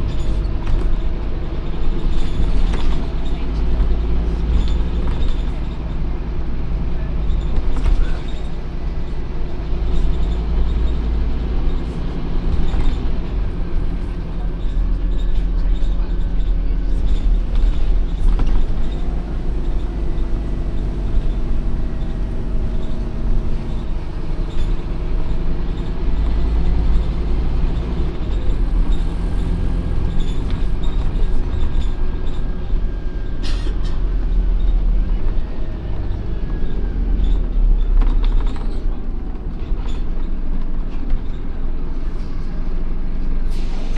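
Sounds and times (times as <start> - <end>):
bus diesel engine rumbling: 0.0 - 43.9
short air hiss: 43.5 - 43.9.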